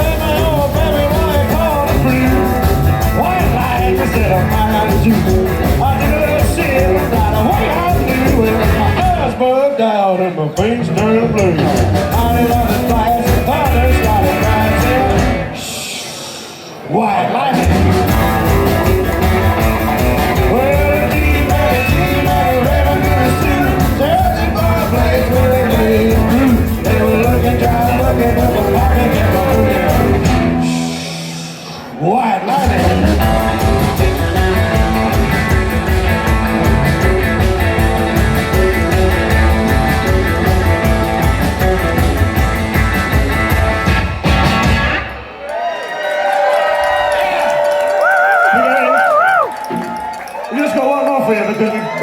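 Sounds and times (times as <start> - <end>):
electric guitar with bent notes: 0.0 - 9.4, 10.4 - 16.8, 17.5 - 45.5, 46.5 - 52.0
steady drum beat: 0.0 - 9.4, 10.6 - 15.6, 17.6 - 30.8, 32.6 - 45.2
bass: 0.0 - 9.5, 10.6 - 15.7, 17.5 - 45.6
rock and roll band playing: 0.0 - 52.0.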